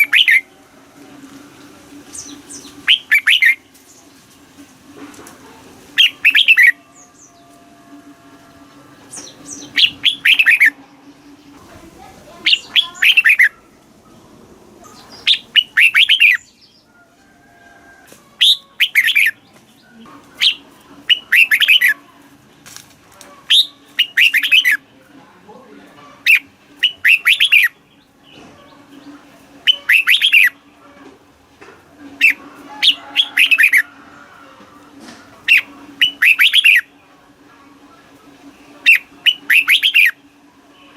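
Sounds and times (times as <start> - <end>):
bird singing descending notes: 0.0 - 4.0, 5.9 - 11.6, 12.3 - 16.9, 18.4 - 19.5, 20.4 - 22.0, 23.5 - 24.8, 26.3 - 28.4, 29.6 - 30.7, 35.4 - 37.2, 38.6 - 40.4
steady low hum: 0.0 - 17.3, 17.9 - 40.9.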